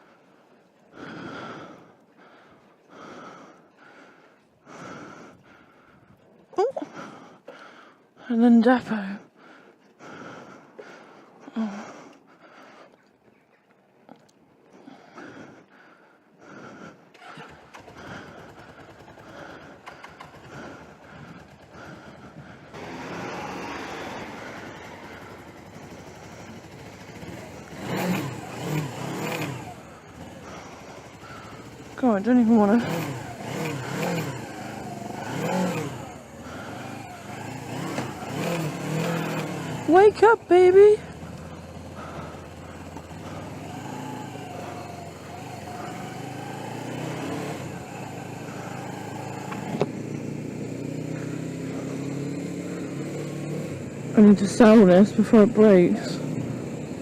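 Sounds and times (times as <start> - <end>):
motorcycle engine revving: 16.5 - 57.0.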